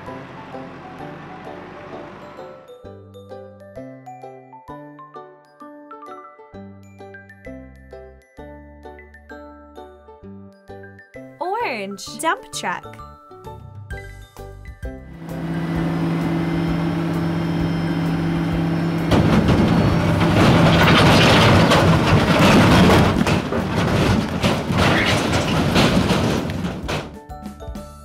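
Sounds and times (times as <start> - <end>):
diesel engine humming: 0.0 - 2.8, 15.1 - 27.2
truck rattling rumble: 0.0 - 2.8, 15.2 - 27.3.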